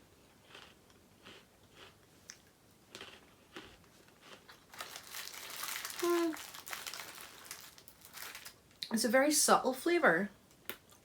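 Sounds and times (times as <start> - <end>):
plastic snack packet crinkling: 3.0 - 8.9
person humming: 6.0 - 6.4.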